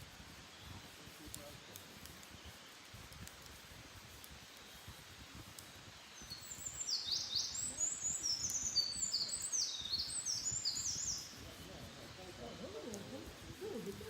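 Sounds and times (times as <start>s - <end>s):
songbird singing high notes: 6.2s - 12.7s.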